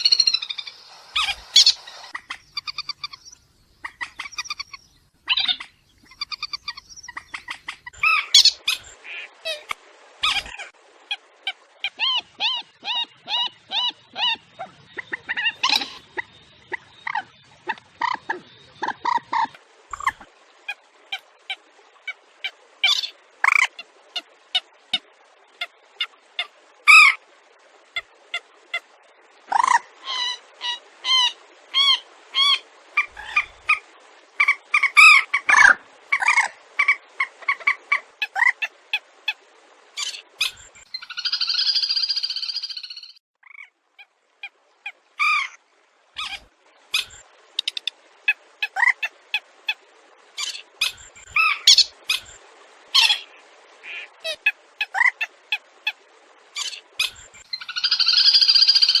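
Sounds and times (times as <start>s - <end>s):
recorded waterbird calls: 0.0s - 27.2s, 27.9s - 59.0s.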